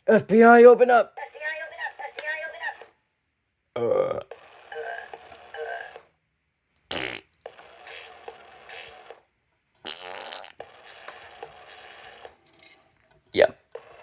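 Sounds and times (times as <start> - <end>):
fart noise echo: 6.9 - 9.0, 9.8 - 12.0
toy parrot fart noises: 6.9 - 9.2, 9.8 - 12.3.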